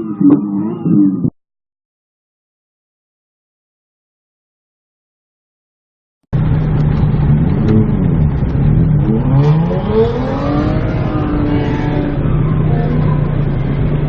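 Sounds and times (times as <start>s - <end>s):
car engine revving: 6.4s - 14.0s.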